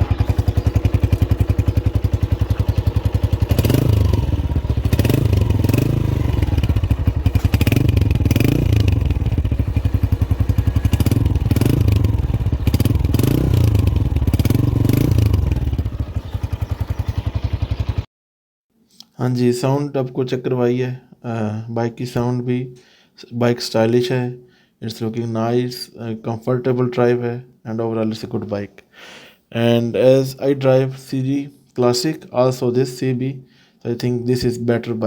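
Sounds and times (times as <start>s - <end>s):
motorcycle engine idling and revving: 0.0s - 18.1s.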